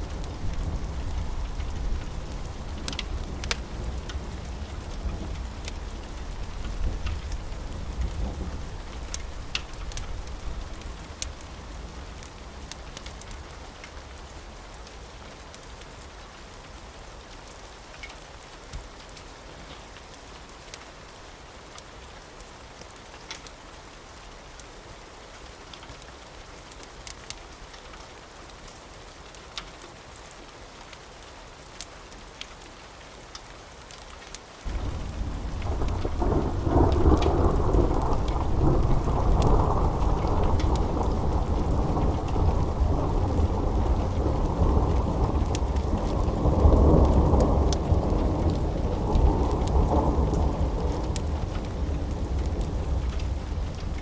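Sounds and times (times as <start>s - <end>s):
thunder rumbling: 0.0s - 12.0s, 34.7s - 54.0s
raindrops ticking: 0.0s - 54.0s
steady rain: 0.0s - 54.0s.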